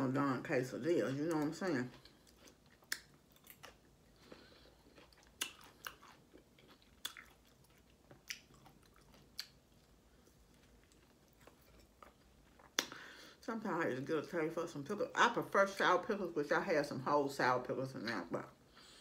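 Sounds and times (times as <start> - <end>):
crunchy chewing: 1.4 - 12.9.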